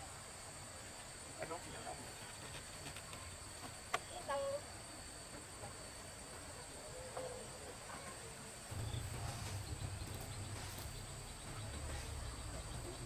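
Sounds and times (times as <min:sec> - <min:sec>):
insects trilling: 0:00.1 - 0:13.0
low rumble: 0:08.7 - 0:13.0.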